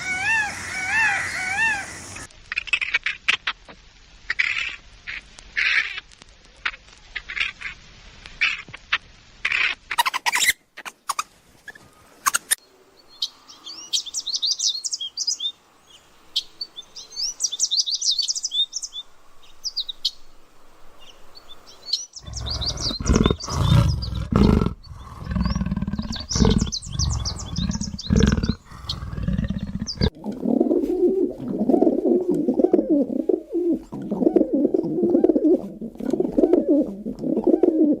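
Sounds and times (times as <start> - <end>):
small birds chirping: 9.5 - 20.3, 21.0 - 30.2
low pulsing call: 22.2 - 30.1.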